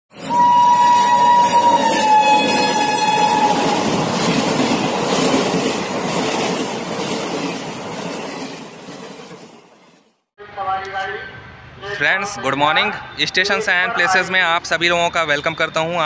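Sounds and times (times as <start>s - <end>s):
train coaches rumbling past: 0.1s - 10.2s
train horn: 0.2s - 4.0s.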